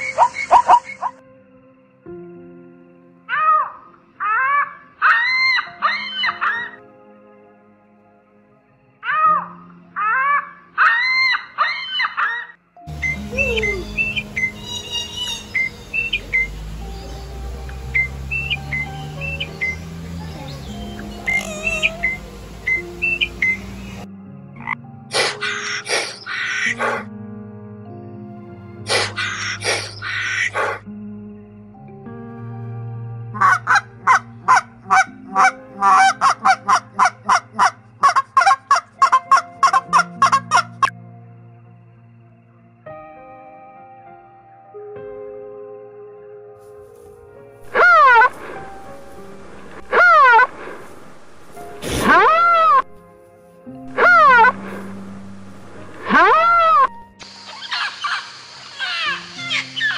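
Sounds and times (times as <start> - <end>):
geese honking: 10.1 - 27.0, 33.4 - 40.9, 47.6 - 53.0, 53.9 - 59.9
whistled bird chirps: 12.9 - 24.1
low steady hum: 54.5 - 57.1.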